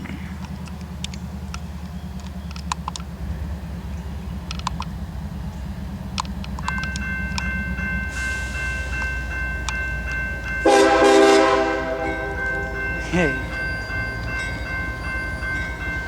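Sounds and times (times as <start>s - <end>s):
high ringing tones with ticks: 2.5s - 10.7s, 12.1s - 16.0s
locomotive air horn blast: 10.6s - 12.4s.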